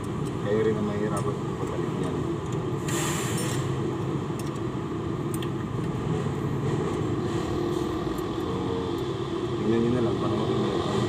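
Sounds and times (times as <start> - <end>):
short hiss: 2.8 - 3.7.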